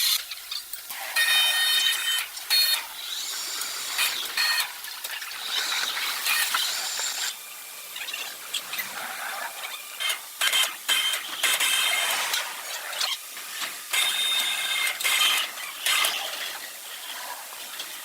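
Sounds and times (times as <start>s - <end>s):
sawmill machinery cutting wood: 1.2s - 7.4s.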